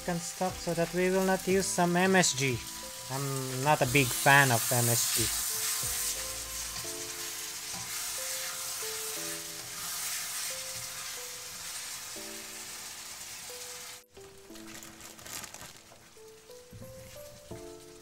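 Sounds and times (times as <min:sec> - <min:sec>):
chicken sizzling in a wok: 0:00.0 - 0:18.0
soft background music: 0:00.0 - 0:18.0
spatula turning food: 0:00.8 - 0:14.6.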